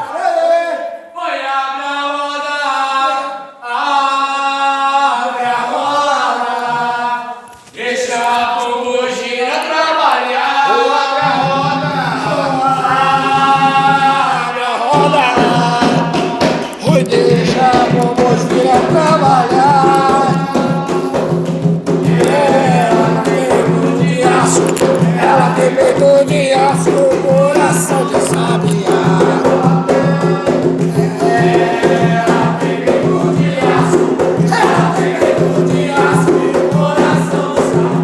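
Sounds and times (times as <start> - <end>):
voices singing a chant: 0.0 - 38.0
percussion strikes: 10.9 - 38.0.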